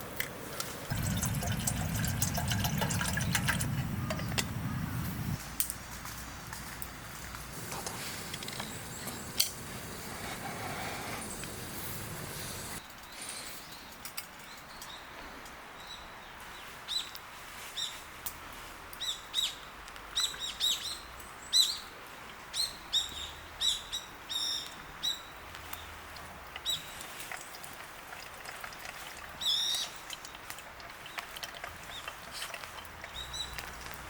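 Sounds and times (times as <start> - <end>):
birds chirping: 0.9 - 5.4, 7.9 - 15.1.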